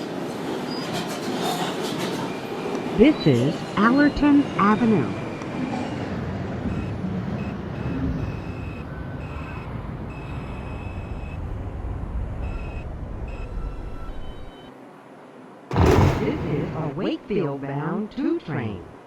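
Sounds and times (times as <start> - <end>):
subway train wheels rumbling: 0.0 - 17.4
thin high tone from train: 0.6 - 11.6, 12.3 - 14.8.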